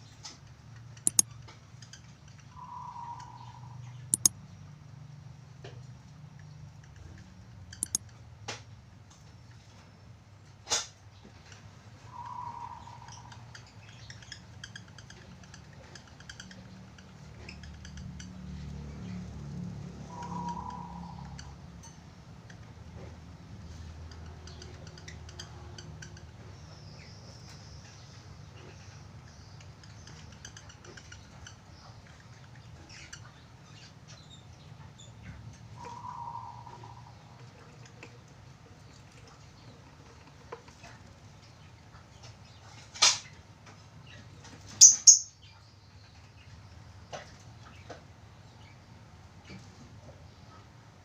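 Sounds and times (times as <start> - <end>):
budgerigars chirping and clicking: 1.0 - 4.3, 7.8 - 8.0, 12.6 - 18.7, 24.0 - 38.2, 40.8 - 46.6
budgerigar chirping: 44.8 - 45.3.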